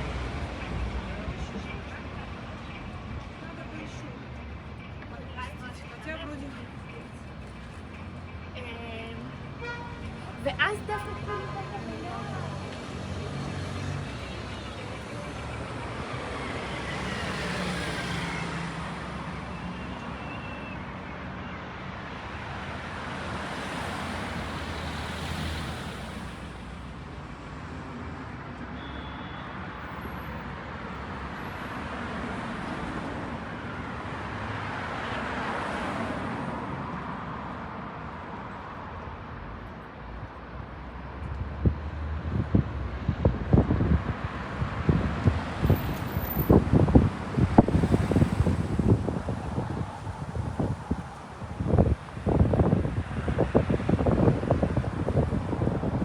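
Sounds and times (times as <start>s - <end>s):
cars passing: 0.0s - 56.0s
road noise hum: 0.0s - 56.0s.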